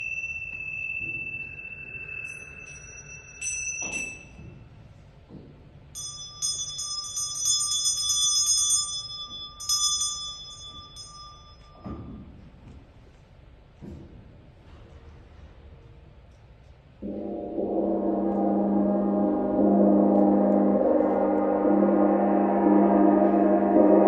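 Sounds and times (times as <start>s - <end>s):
singing bowls ringing: 0.0s - 4.6s, 5.9s - 12.1s.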